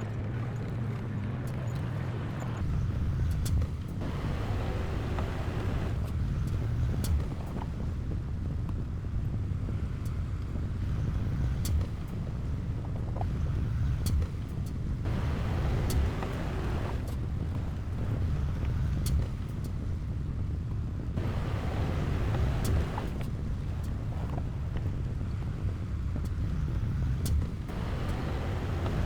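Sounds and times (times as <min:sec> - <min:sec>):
diesel machinery rumbling: 0:02.4 - 0:08.2, 0:14.7 - 0:29.0.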